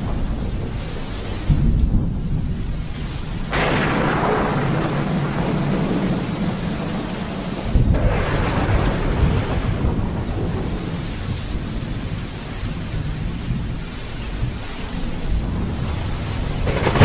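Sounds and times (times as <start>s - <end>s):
rain hissing: 0.0s - 17.0s
thunder clap and rumble: 0.0s - 17.0s.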